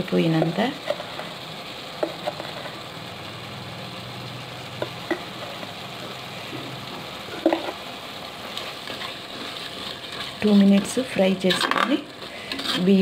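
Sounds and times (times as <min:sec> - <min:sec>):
food sizzling in a pot: 0:00.0 - 0:13.0
spoon scraping a pot: 0:08.6 - 0:13.0.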